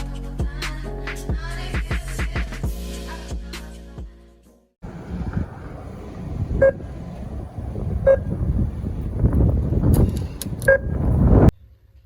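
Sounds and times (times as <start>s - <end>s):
low rumbling noise: 4.8s - 10.2s
short beeps: 10.7s - 11.0s.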